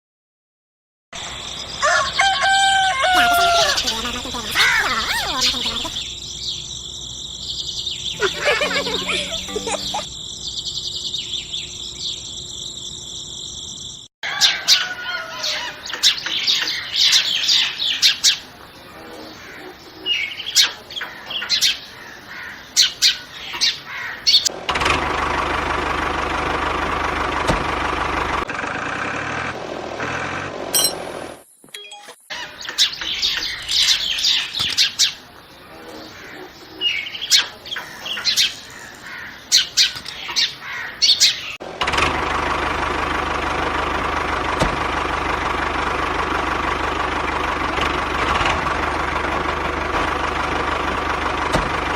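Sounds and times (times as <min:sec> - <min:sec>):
small birds chirping: 0:03.1 - 0:14.1, 0:15.8 - 0:24.5, 0:32.3 - 0:41.6.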